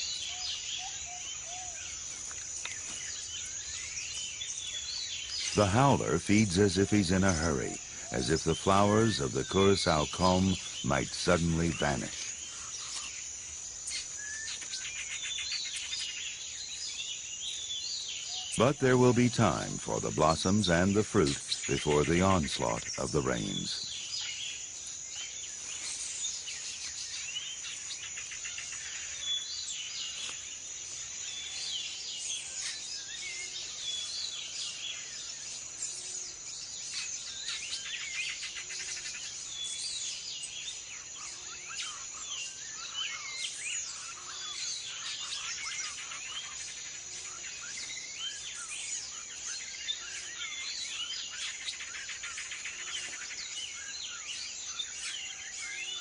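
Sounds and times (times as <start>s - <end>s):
high-pitched insect drone: 0.0s - 17.1s
birds chirping and calling: 0.0s - 56.0s.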